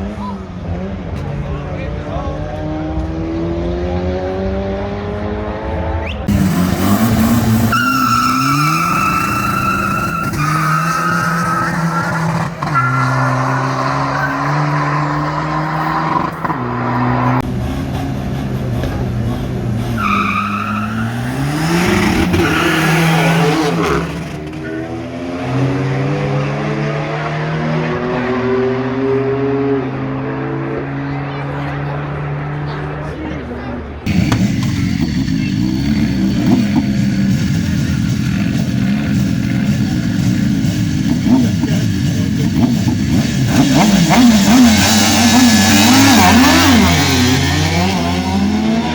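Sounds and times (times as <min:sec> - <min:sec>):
car engine revving high: 0:02.3 - 0:31.2, 0:34.1 - 0:48.9
tyres squealing: 0:06.3 - 0:17.4, 0:20.0 - 0:24.6
car engine running: 0:34.1 - 0:48.1.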